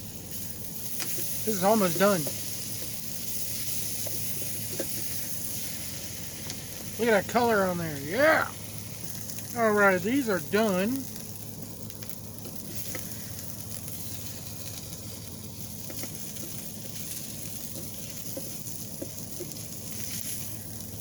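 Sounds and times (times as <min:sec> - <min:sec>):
vegetables sizzling: 0:00.0 - 0:21.0.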